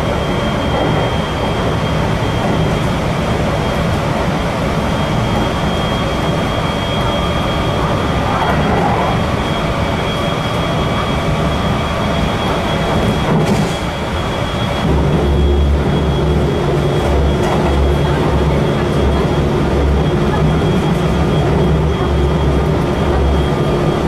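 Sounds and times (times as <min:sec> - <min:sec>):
train wheels rumbling on rail: 0:00.0 - 0:24.0
deep pulsing rumble: 0:05.3 - 0:11.7
thin high whine: 0:05.6 - 0:11.3.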